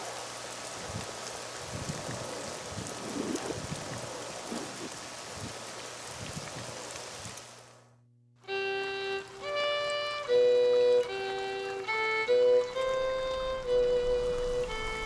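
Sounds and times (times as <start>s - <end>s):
steady rain falling: 0.0s - 15.0s
low bumps: 12.7s - 15.0s.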